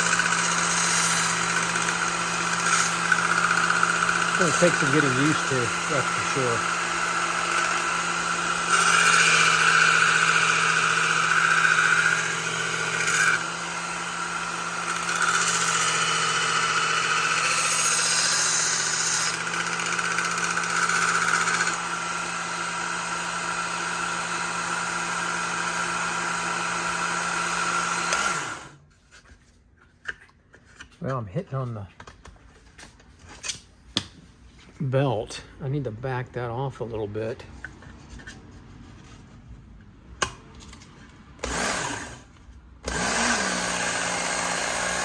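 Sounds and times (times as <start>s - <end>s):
belt sharpener motor humming: 0.0s - 28.8s, 41.4s - 45.0s.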